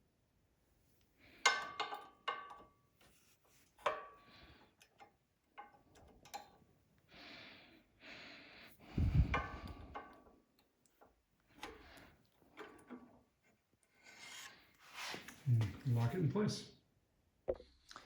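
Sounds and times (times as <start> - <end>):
rubbing scrapes: 13.9 - 15.5.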